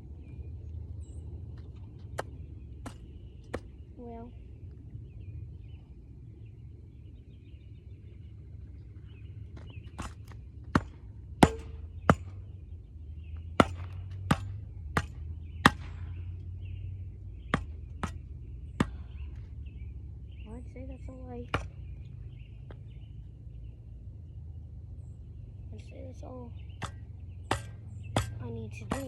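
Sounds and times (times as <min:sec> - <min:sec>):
hand tool chopping into dirt: 0:09.9 - 0:12.4, 0:13.6 - 0:16.2, 0:17.5 - 0:19.2, 0:26.8 - 0:29.0.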